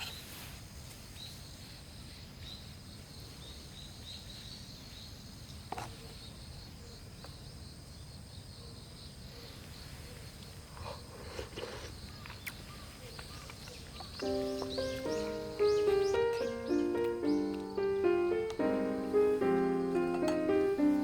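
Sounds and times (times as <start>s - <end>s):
insects chirping: 0.0s - 21.0s
rustling knocks: 14.2s - 21.0s.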